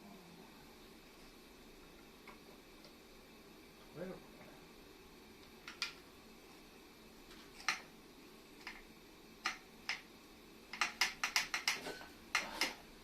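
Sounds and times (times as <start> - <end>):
metal parts clicking and knocking: 10.7 - 12.8.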